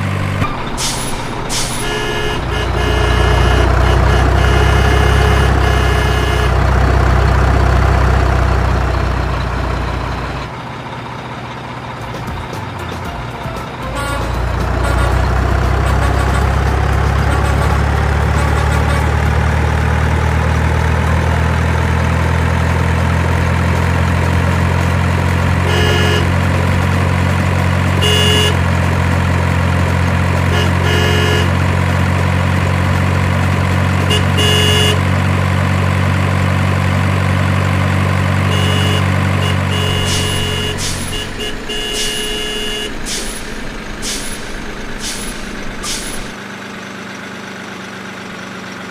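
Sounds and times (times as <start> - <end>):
heavy truck engine running: 0.0 - 48.9.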